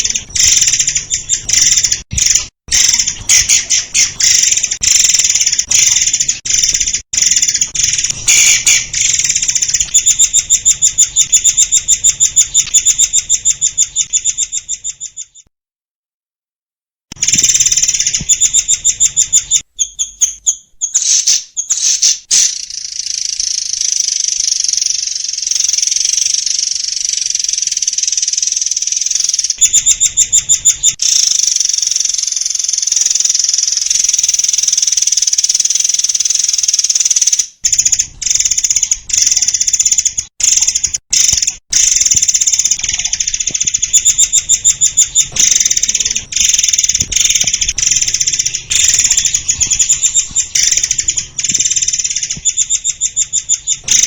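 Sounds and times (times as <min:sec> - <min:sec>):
bird singing rapid high notes: 0:35.5 - 0:54.0.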